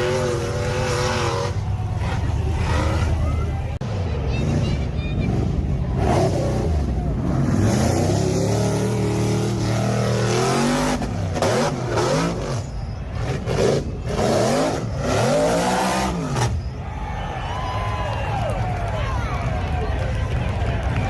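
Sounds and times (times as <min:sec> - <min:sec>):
vehicle engine revving: 0:00.0 - 0:16.8.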